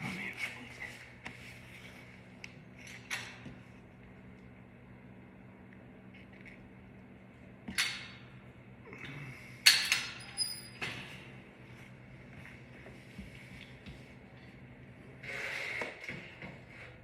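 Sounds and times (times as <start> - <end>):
low electric hum: 0.0 - 17.0.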